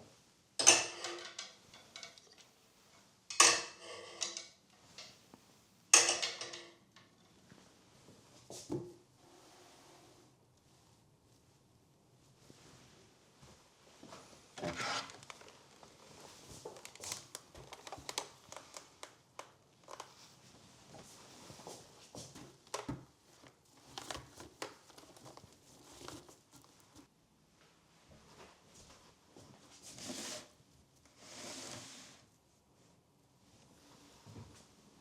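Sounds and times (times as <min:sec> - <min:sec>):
crinkling and rustling: 0:10.3 - 0:35.0.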